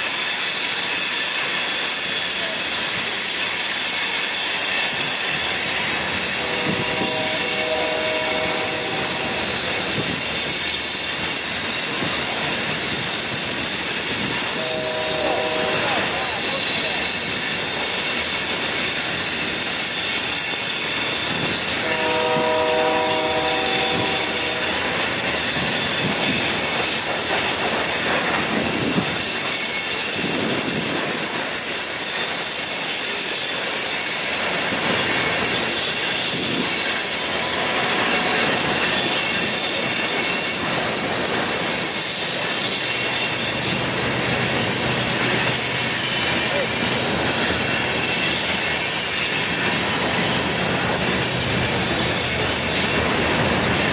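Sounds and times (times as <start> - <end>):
diesel locomotive engine hum: 0.0 - 32.4, 34.4 - 53.9
train wheels on rails: 0.0 - 53.9
high thin wheel squeal: 1.8 - 30.5, 33.9 - 53.9
train horn: 6.0 - 10.2, 14.1 - 16.8, 21.3 - 26.5.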